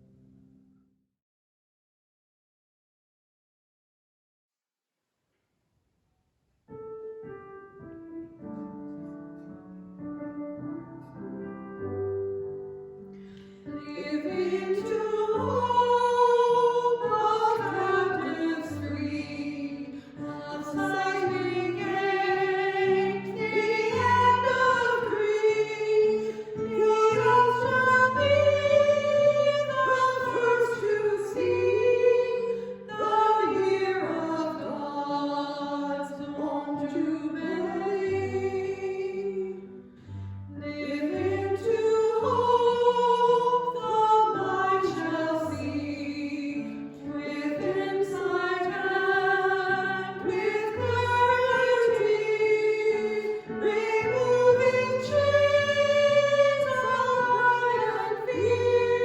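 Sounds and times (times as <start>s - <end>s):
voices singing a hymn: 13.9s - 39.6s, 40.6s - 59.0s.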